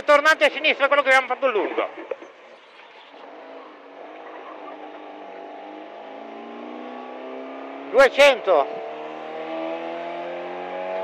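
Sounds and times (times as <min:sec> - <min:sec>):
rally car engine accelerating: 0:03.2 - 0:11.0.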